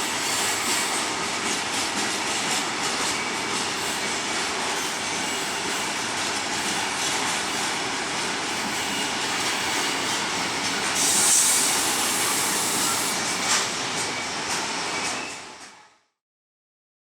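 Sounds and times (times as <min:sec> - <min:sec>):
train wheels on rails: 0:00.0 - 0:16.0
high hiss: 0:11.0 - 0:13.2.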